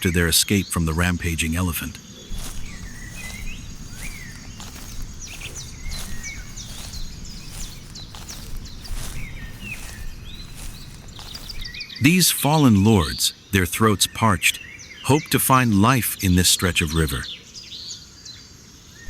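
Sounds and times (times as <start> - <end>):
bird chirps: 0.0 - 15.4
soft patter: 2.2 - 11.8.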